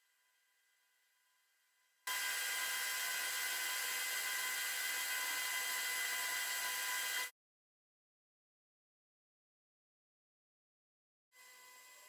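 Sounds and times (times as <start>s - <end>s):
faint high whine: 11.4s - 12.0s.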